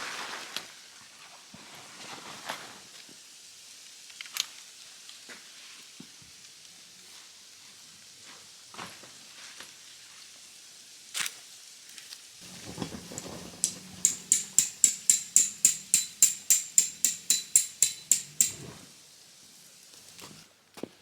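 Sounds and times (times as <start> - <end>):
rapid metallic tapping: 12.4 - 18.7.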